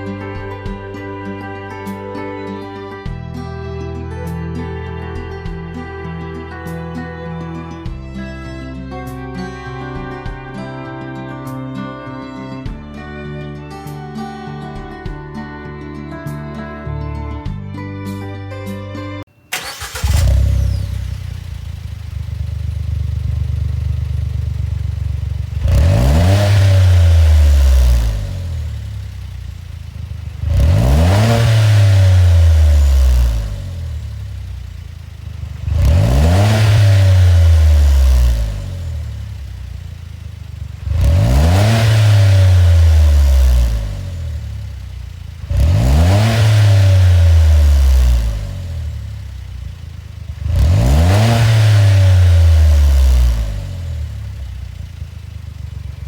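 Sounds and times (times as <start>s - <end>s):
car engine idling and revving: 0.0s - 3.2s, 19.5s - 56.0s.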